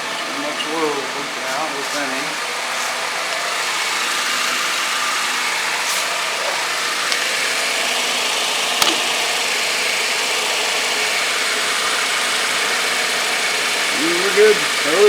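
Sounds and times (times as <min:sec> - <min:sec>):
car engine idling: 0:00.0 - 0:15.0
sharp click: 0:08.8 - 0:09.1.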